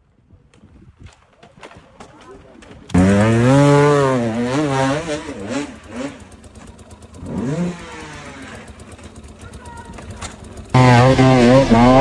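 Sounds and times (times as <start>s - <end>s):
dirt bike engine revving: 2.9s - 12.0s.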